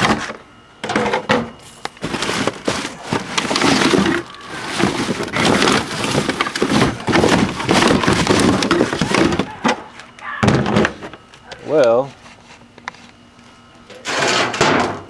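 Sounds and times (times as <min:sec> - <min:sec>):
clattering and scraping: 0:02.0 - 0:09.8, 0:14.0 - 0:15.0.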